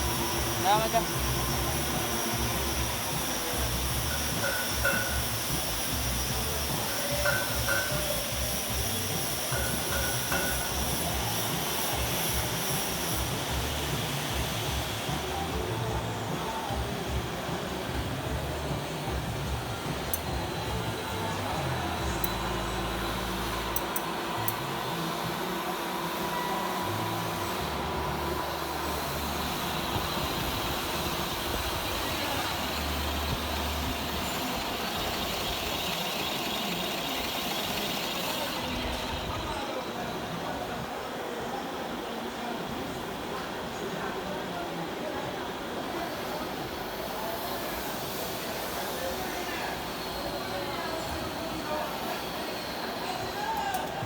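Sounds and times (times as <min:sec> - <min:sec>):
metal lathe rumbling: 0:00.0 - 0:16.3, 0:16.9 - 0:40.4
thin high whine: 0:00.0 - 0:16.8.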